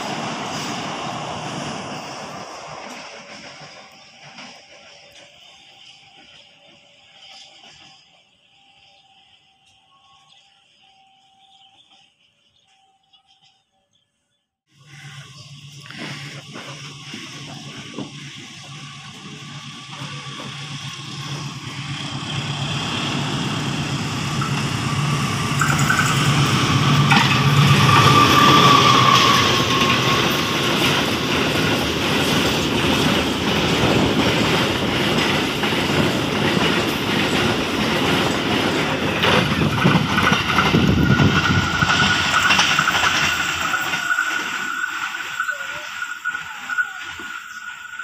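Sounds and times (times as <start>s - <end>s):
locomotive engine passing: 0.0s - 9.4s, 14.8s - 48.0s
wheel clatter on rails: 15.8s - 48.0s
thin high steady tone: 17.6s - 30.5s, 43.6s - 48.0s.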